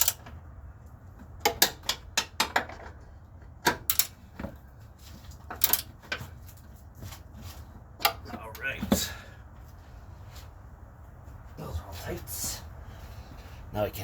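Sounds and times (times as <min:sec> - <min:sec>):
ratchet wrench clicking: 0:00.0 - 0:00.2, 0:03.9 - 0:04.2, 0:05.6 - 0:05.9.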